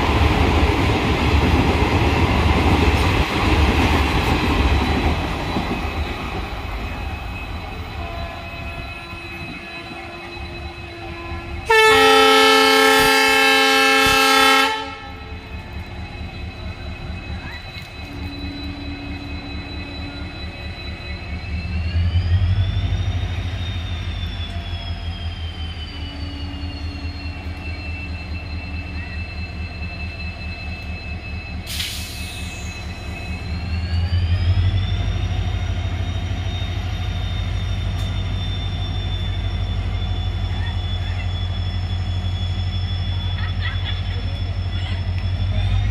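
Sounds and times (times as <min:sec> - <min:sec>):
locomotive throb and whine: 0:00.0 - 0:45.9
brief sharp hiss: 0:31.7 - 0:32.8.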